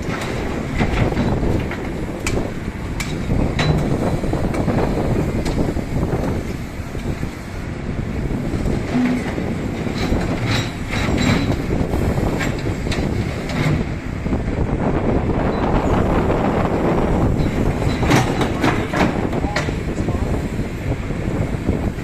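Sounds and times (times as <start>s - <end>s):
heavy machinery rumbling: 0.0s - 22.0s
metallic clanks and knocks: 3.0s - 4.1s, 8.9s - 13.8s, 17.4s - 19.8s.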